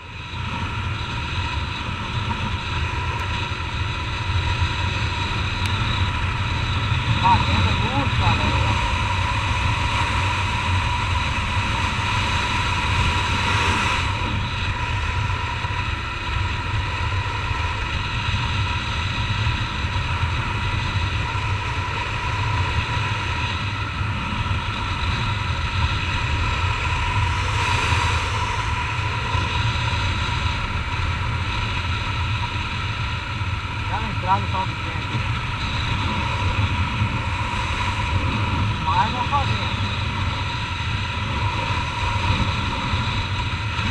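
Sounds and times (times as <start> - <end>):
motorcycle engine cruising: 0.0 - 14.9
wind rush on microphone: 0.0 - 43.9.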